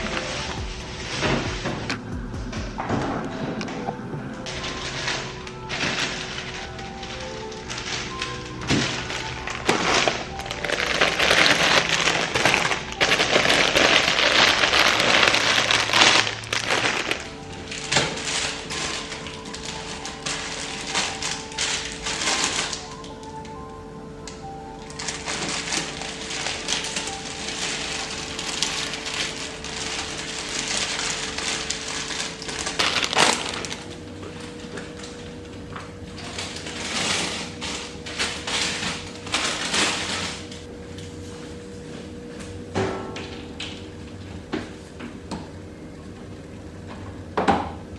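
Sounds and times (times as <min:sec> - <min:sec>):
plastic packaging crinkling: 0:00.0 - 0:02.1, 0:02.8 - 0:42.6
dense loud crackling: 0:00.0 - 0:23.3, 0:24.8 - 0:40.8
steady hum: 0:00.0 - 0:47.9.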